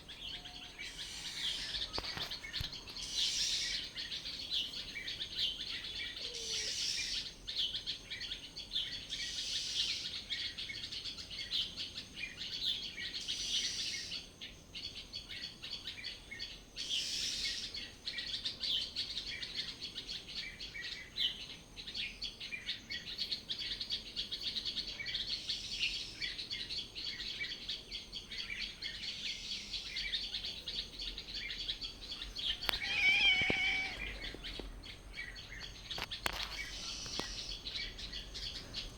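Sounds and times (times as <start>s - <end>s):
small birds chirping and singing: 0.0s - 38.9s
loud bird call: 31.7s - 35.6s.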